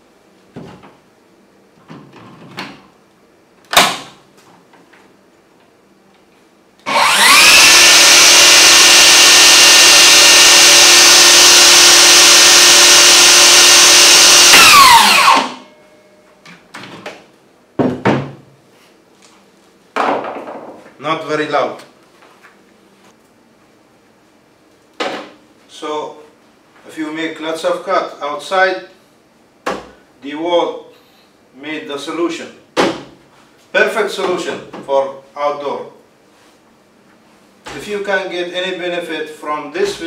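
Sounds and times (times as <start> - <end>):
table saw motor whining: 6.8 - 15.7.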